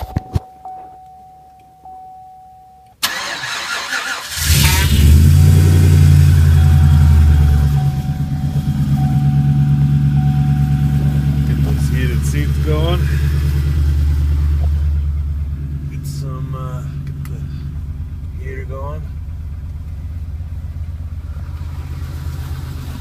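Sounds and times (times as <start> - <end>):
starter motor cranking: 3.0 - 8.2
pickup engine running fast: 3.0 - 23.0.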